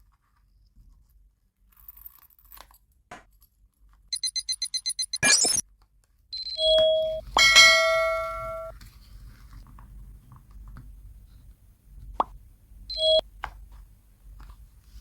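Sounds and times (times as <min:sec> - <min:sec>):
sharp click: 0:05.0 - 0:05.6
bell-like chime: 0:07.0 - 0:08.7.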